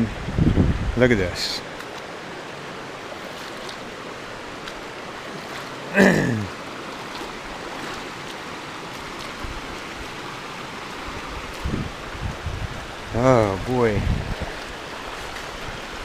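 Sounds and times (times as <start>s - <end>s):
river water rushing over rocks: 0.1s - 16.0s.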